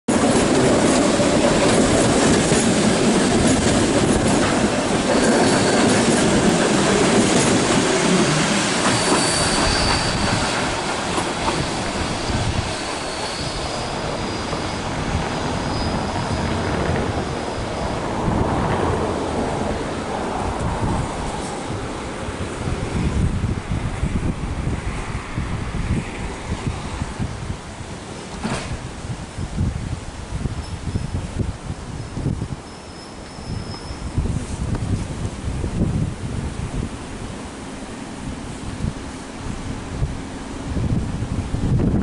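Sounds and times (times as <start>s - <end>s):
train wheels clattering: 0.1s - 17.6s, 28.3s - 28.8s
faint wheel squeal: 8.8s - 10.6s, 11.5s - 18.0s, 32.6s - 34.4s.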